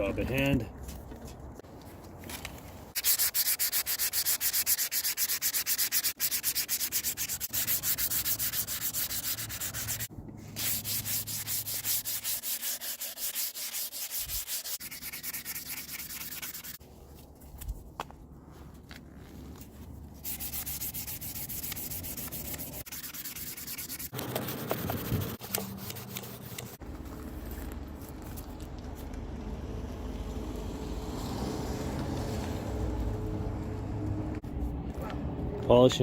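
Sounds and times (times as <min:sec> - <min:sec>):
sandpaper rubbing on metal: 0:03.0 - 0:16.8, 0:20.2 - 0:26.8.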